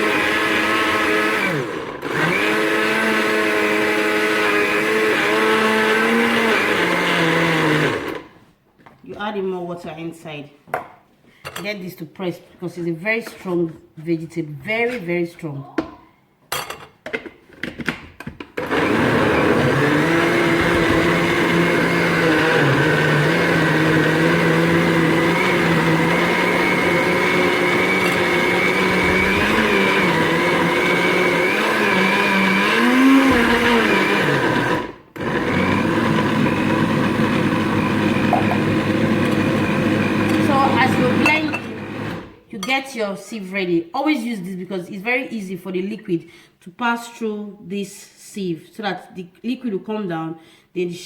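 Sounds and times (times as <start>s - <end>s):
kitchen blender running: 0.0s - 8.4s, 18.6s - 42.4s.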